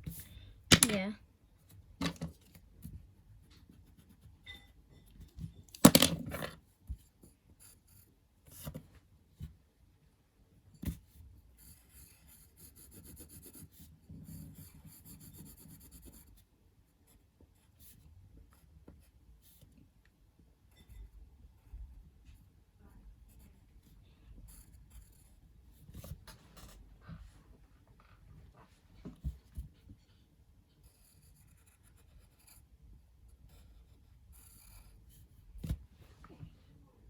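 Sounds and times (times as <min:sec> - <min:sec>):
drawing strokes scratching on paper: 0:11.6 - 0:16.3, 0:30.8 - 0:32.7, 0:33.4 - 0:35.3.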